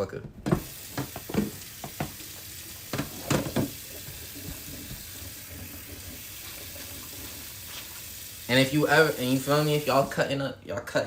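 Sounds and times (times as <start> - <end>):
tap running into sink: 0.4 - 7.9.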